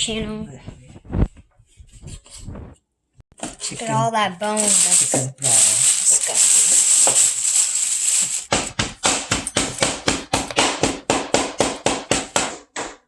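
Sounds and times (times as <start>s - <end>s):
scraping rub: 4.5s - 8.5s
knife chopping on a board: 8.5s - 13.0s.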